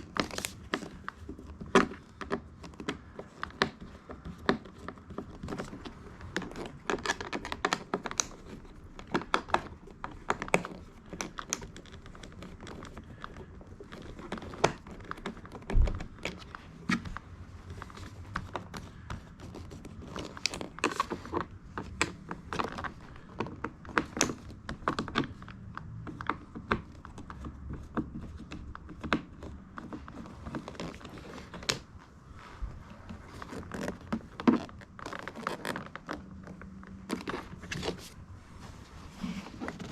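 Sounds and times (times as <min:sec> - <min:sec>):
plastic parts clicking and tapping: 0:00.0 - 0:31.9.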